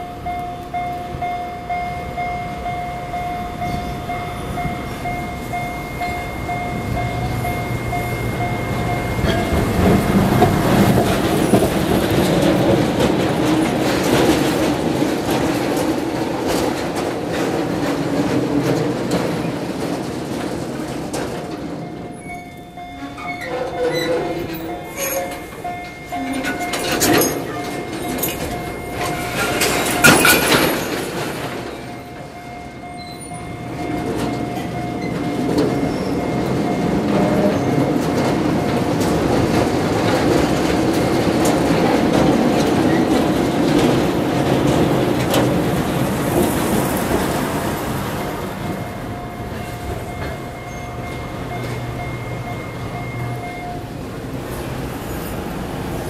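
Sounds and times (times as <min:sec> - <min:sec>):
diesel locomotive engine: 0:00.0 - 0:56.0
train wheels rumbling: 0:00.0 - 0:56.0
wheel and coupling clanks: 0:03.6 - 0:47.4.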